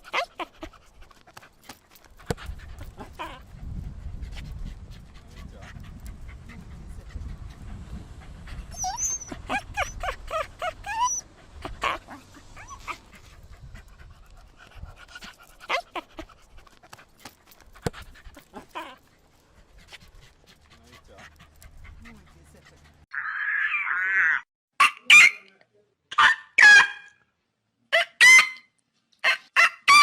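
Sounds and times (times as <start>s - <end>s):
dog panting: 0.0s - 23.1s
dog whimpering: 8.7s - 13.1s.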